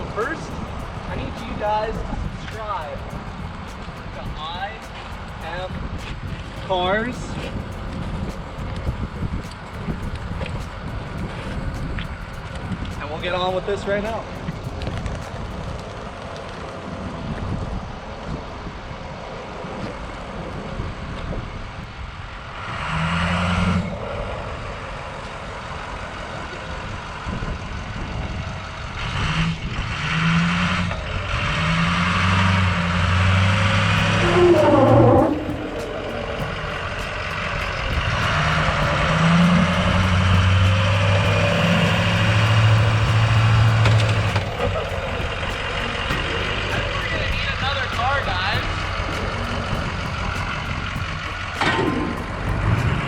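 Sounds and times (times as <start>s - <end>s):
diesel truck engine revving: 22.6s - 27.8s, 28.4s - 53.0s.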